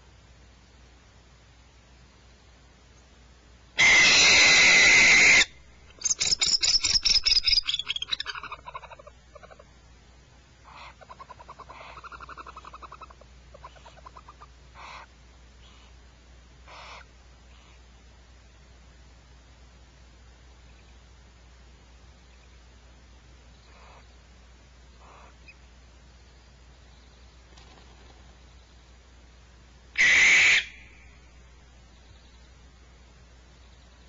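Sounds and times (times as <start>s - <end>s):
owl screech: 3.8s - 9.6s, 30.0s - 31.0s
owl pulsed notes: 30.0s - 32.6s.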